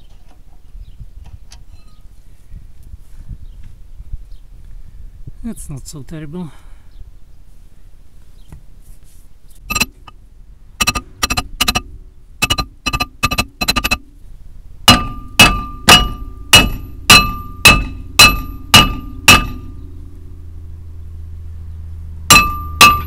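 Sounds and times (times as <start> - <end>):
steel disc ringing: 9.7 - 10.2, 10.8 - 14.2, 14.8 - 20.4, 22.3 - 23.0
hammer blows on brake disc: 14.8 - 20.1, 22.3 - 23.0.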